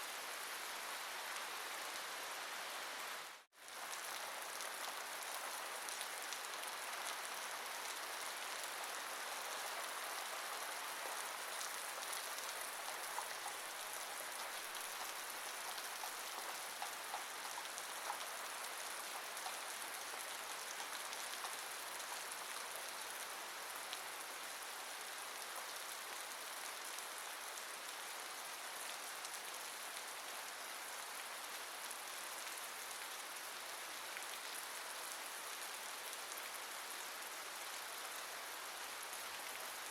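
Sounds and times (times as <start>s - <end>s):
rain falling: 0.0s - 39.9s
raindrop ticks: 11.6s - 22.5s.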